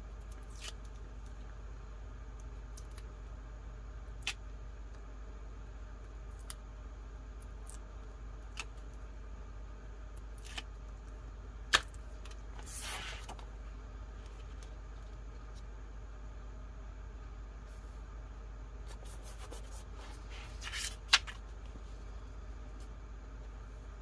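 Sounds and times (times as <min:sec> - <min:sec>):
paper rustling: 0:18.9 - 0:21.6.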